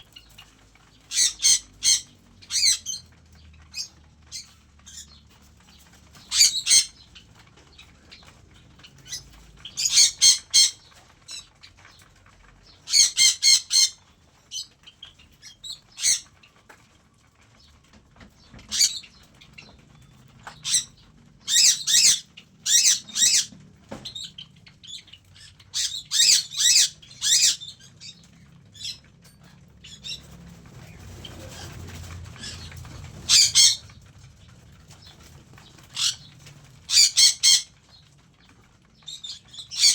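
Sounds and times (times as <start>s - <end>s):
birds squawking: 0.0s - 16.7s, 18.4s - 39.9s
wing flapping: 29.9s - 39.0s.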